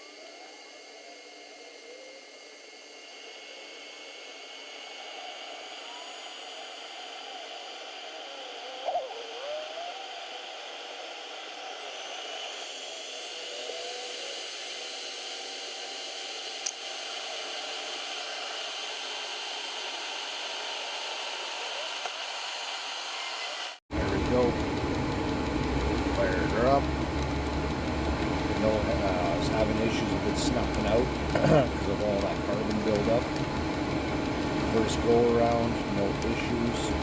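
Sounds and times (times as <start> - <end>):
heater blower fan whirring: 0.0 - 37.0
sharp click: 16.6 - 16.8.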